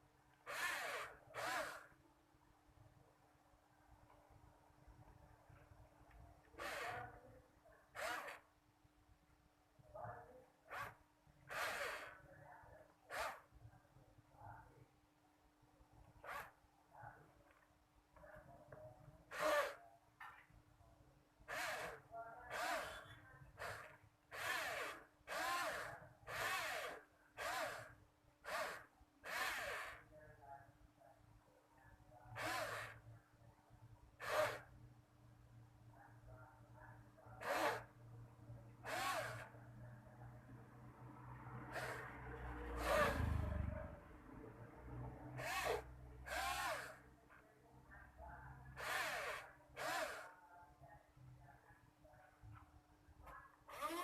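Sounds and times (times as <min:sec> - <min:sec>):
small electric motor spinning up: 0:00.5 - 0:01.9, 0:06.6 - 0:07.1, 0:08.0 - 0:08.4, 0:10.7 - 0:12.1, 0:13.1 - 0:13.5, 0:19.3 - 0:19.8, 0:21.5 - 0:23.0, 0:23.6 - 0:30.0, 0:32.4 - 0:33.0, 0:34.2 - 0:34.7, 0:37.4 - 0:37.9, 0:38.8 - 0:39.5, 0:41.7 - 0:42.1, 0:42.7 - 0:43.4, 0:45.4 - 0:47.0, 0:48.8 - 0:50.3, 0:53.7 - 0:54.0.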